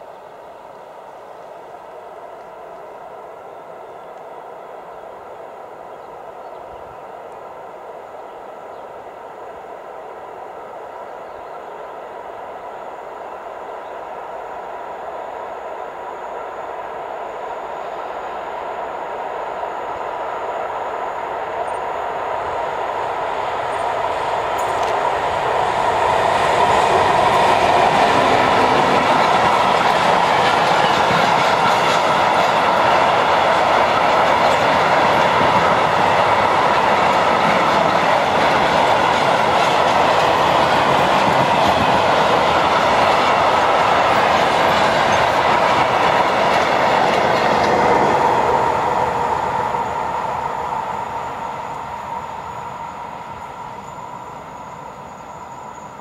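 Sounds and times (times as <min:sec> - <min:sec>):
diesel locomotive approaching: 0:00.0 - 0:56.0
freight wagons rolling on rails: 0:24.5 - 0:50.6.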